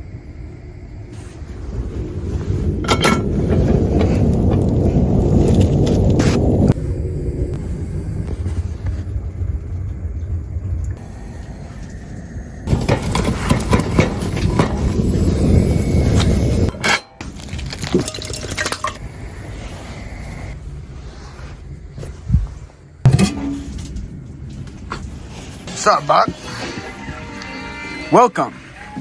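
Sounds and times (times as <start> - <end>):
low rumble: 0.0 - 26.8
dishes and utensils clattering: 2.8 - 4.2, 16.7 - 19.0, 23.1 - 24.0.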